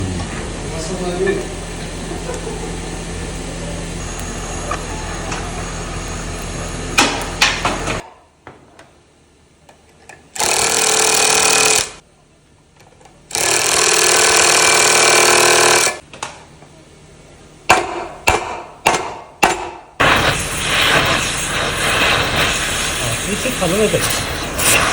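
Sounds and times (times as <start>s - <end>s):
power tool running: 0.0s - 8.0s, 10.3s - 12.0s, 13.3s - 16.0s, 20.0s - 24.9s
steady machine hum: 0.0s - 24.9s
sharp knocks: 17.7s - 20.0s.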